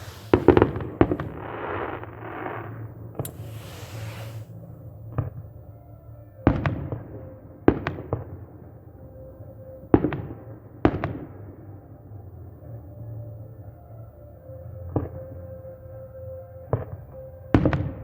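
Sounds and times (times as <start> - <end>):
fireworks shells bursting: 0.0 - 4.5.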